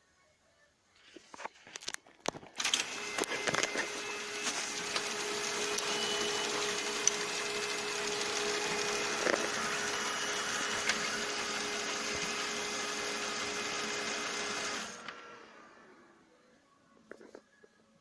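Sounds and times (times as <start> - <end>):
laser printer whirring: 2.6 - 16.6.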